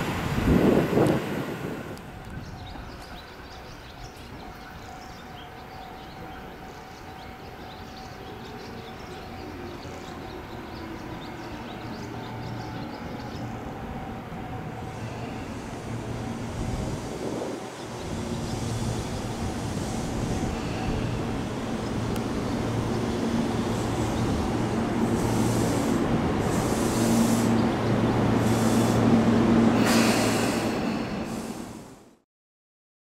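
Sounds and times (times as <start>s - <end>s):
train wheels rumbling: 0.0s - 32.1s
short hisses: 29.7s - 31.9s.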